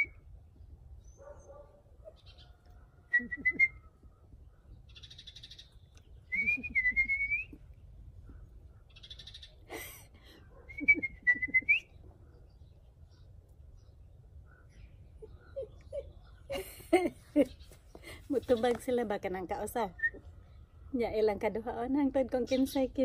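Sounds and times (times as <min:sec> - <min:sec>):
birds chirping in rapid trills: 0:04.1 - 0:06.3, 0:07.7 - 0:09.7, 0:12.3 - 0:19.0.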